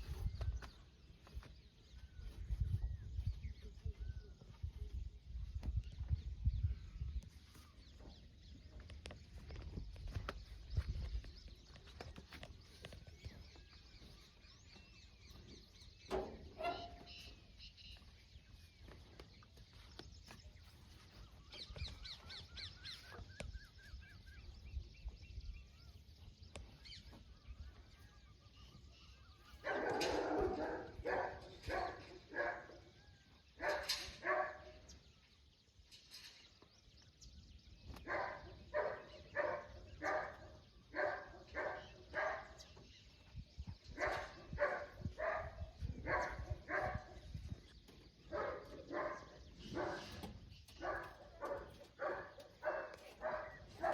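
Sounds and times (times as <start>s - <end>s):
animal barking calls: 16.5s - 17.3s, 29.6s - 32.9s, 33.6s - 34.8s, 38.0s - 42.6s, 43.9s - 47.3s, 48.2s - 53.9s.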